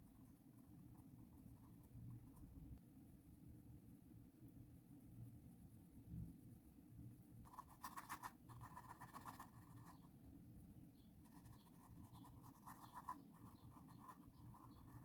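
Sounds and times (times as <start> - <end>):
low room hum: 0.0 - 15.0
paintbrush scratching on canvas: 7.5 - 10.0, 11.3 - 15.0.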